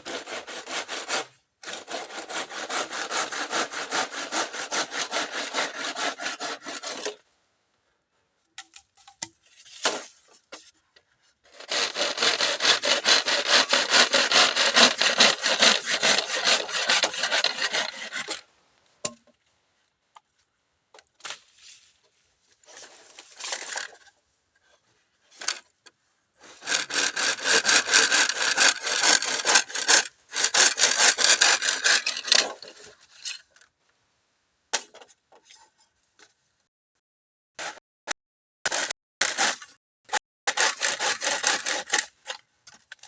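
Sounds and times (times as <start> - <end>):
bamboo being sawn by hand: 0.0 - 7.2, 11.5 - 18.4, 26.4 - 33.0, 38.7 - 43.0
small knocks and scrapes: 8.6 - 11.4, 20.2 - 26.0, 34.8 - 36.4.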